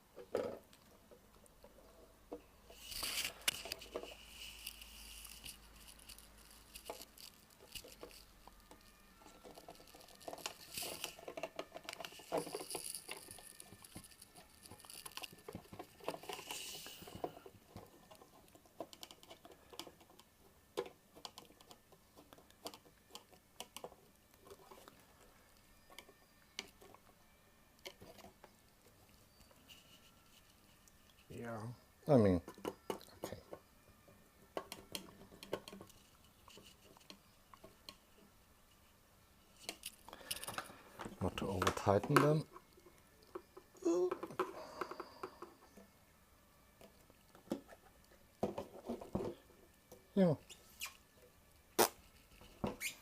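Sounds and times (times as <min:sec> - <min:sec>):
screwdriver clicks and scrapes: 0:02.7 - 0:17.4.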